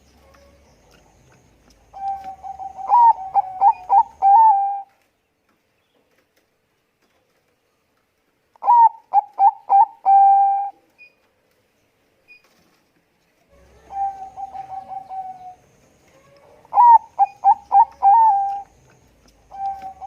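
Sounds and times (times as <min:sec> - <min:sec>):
dove cooing: 0:01.8 - 0:04.9, 0:08.6 - 0:10.8, 0:13.5 - 0:18.8, 0:19.4 - 0:20.0.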